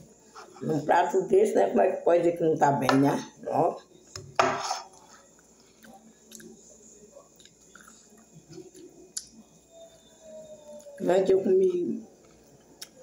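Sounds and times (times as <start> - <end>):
person chewing food: 4.8 - 6.6, 7.3 - 9.4.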